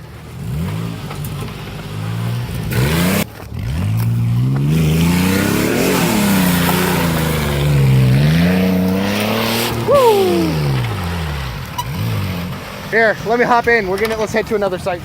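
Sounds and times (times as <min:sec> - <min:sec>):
pickup engine revving: 0:00.0 - 0:15.0.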